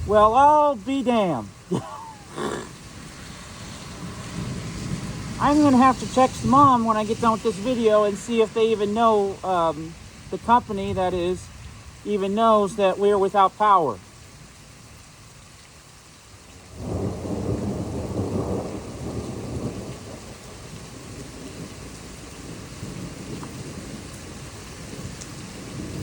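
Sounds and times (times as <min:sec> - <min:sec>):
thunder rumbling: 0:00.0 - 0:13.8, 0:16.7 - 0:26.0
steady rain: 0:00.0 - 0:26.0.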